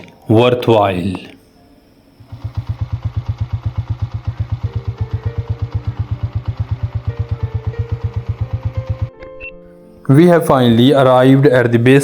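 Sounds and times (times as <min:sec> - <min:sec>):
motorcycle engine idling: 0:02.3 - 0:09.1.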